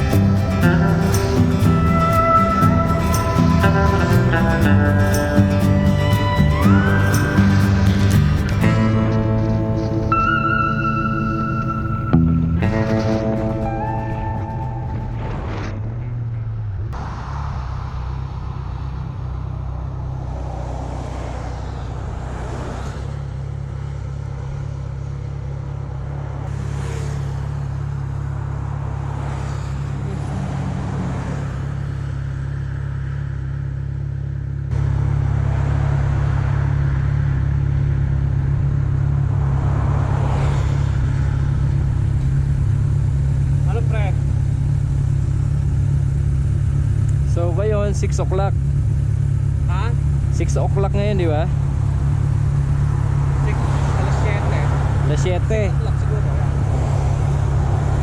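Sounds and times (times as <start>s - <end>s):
motorcycle engine cruising: 0.0s - 17.0s, 18.3s - 58.0s
wind noise: 0.0s - 23.0s
passing traffic: 0.0s - 58.0s.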